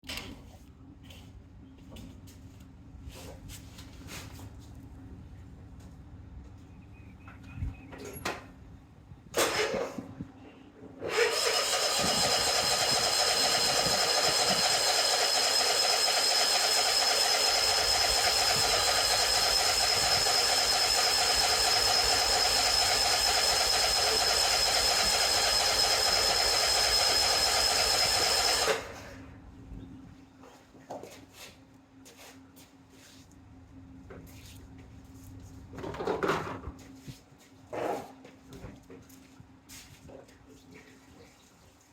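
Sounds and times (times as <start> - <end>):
mower engine cranking: 9.4 - 10.1, 11.0 - 29.2.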